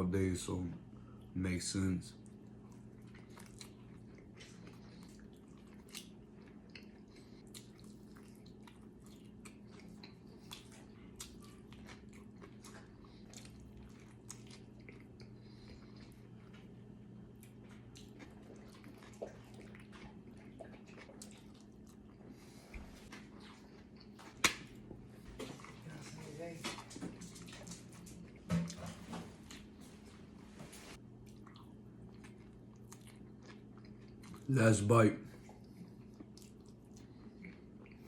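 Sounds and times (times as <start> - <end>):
steady low hum: 0.0 - 38.0
person chewing: 2.2 - 25.8, 31.2 - 34.5, 35.3 - 38.0.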